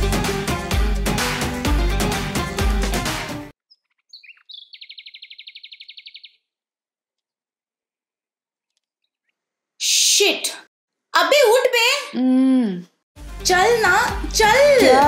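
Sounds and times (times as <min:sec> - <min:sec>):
background music: 0:00.0 - 0:03.5, 0:13.2 - 0:15.0
bird chirping: 0:03.6 - 0:06.6, 0:08.6 - 0:09.5
bird trill: 0:03.7 - 0:06.5.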